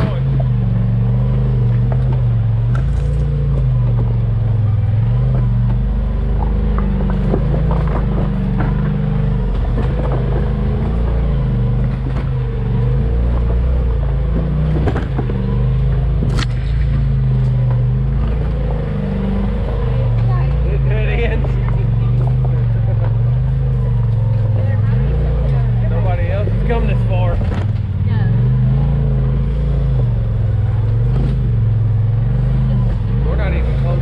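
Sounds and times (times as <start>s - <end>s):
off-road vehicle engine running: 0.0s - 34.0s
sharp clicks and knocks: 5.3s - 20.3s.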